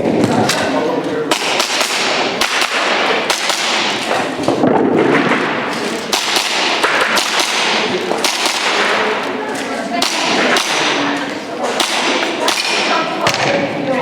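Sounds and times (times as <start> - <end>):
steady background din: 0.0 - 14.0
airsoft pistol shots: 1.3 - 4.2, 5.0 - 9.2, 10.0 - 11.1, 11.7 - 13.4.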